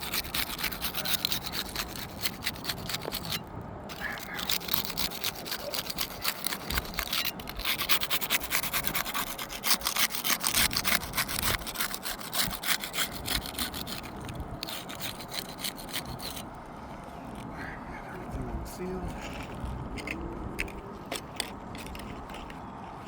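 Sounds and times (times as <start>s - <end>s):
putty knife scraping shingle: 0.0s - 16.5s, 19.2s - 22.6s.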